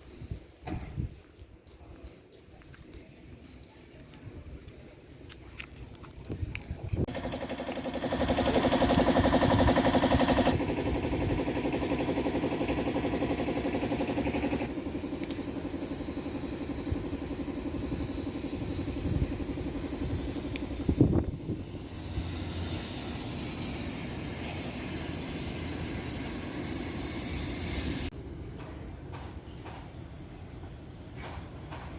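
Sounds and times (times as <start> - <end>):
steady hissing: 7.1 - 31.9.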